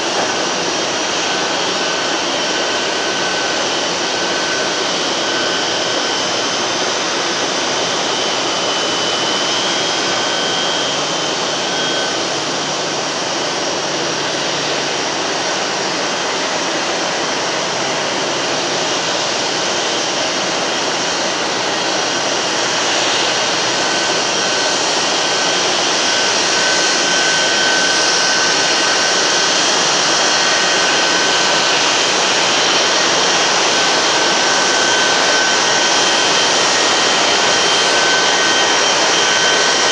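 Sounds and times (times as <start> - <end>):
jet turbine running: 0.0 - 39.9.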